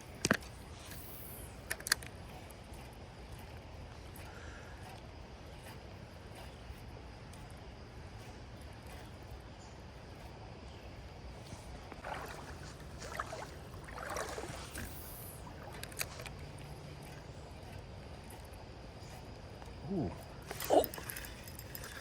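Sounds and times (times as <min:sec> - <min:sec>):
creek water flowing: 0:10.3 - 0:22.0.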